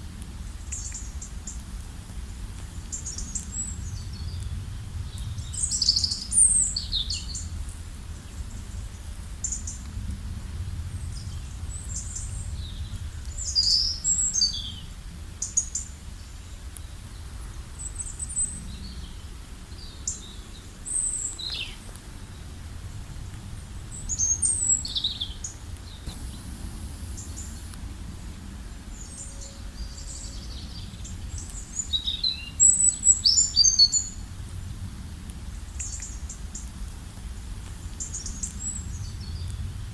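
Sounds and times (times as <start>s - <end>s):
small birds chirping: 23.9s - 34.1s
steady low rumble: 26.0s - 31.6s.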